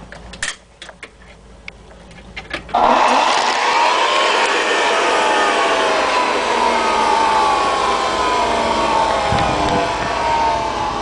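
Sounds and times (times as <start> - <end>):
vacuum cleaner motor whining: 2.7 - 11.0.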